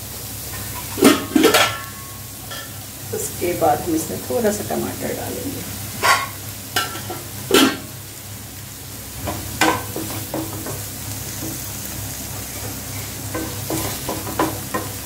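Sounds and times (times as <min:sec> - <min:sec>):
vegetables sizzling in butter: 0:00.0 - 0:15.0
spatula scraping a pan: 0:06.0 - 0:07.8, 0:12.4 - 0:15.0.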